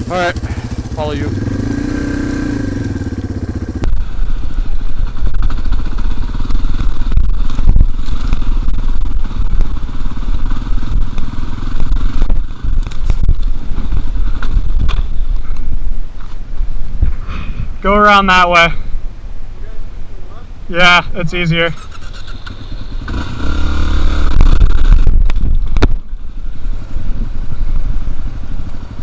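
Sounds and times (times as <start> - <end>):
heavy low engine rumble: 0.0 - 7.6
dirt bike engine idling: 0.0 - 15.4, 21.7 - 29.0.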